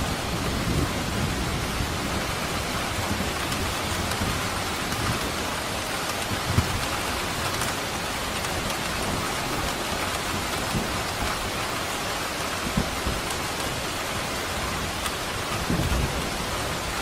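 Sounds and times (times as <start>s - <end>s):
rain on hard surfaces: 0.0s - 17.0s.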